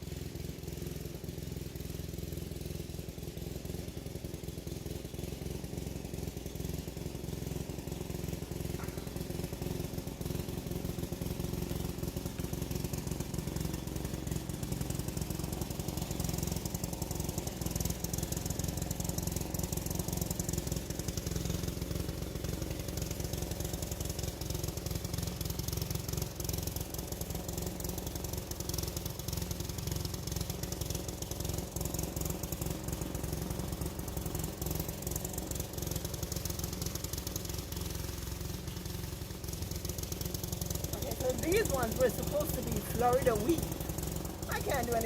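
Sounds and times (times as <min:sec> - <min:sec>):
small engine running rattly: 0:00.0 - 0:45.0.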